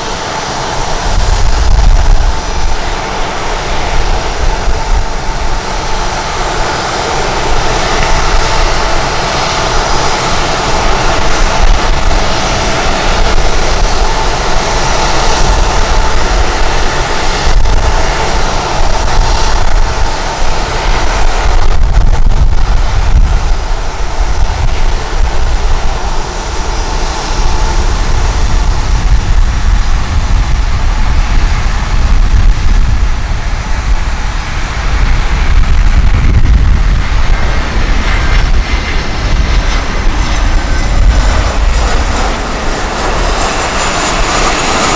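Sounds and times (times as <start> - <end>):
jet engines passing: 0.0 - 44.9
wind buffeting microphone: 0.0 - 44.9.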